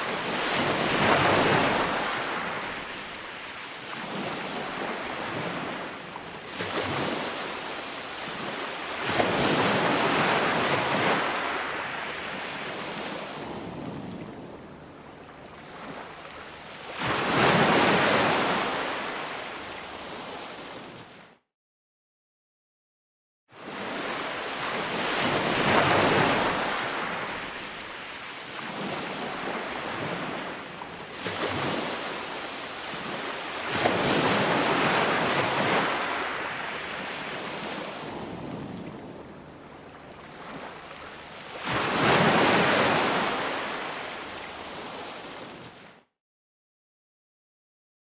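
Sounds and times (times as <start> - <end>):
ocean surf breaking: 0.0 - 5.9, 31.3 - 45.6.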